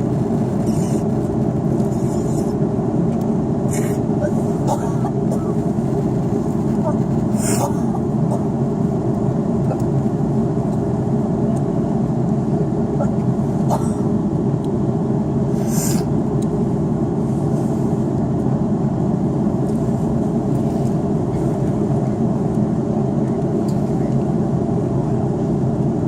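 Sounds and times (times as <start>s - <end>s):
aircraft cabin engine rumble: 0.0s - 26.0s.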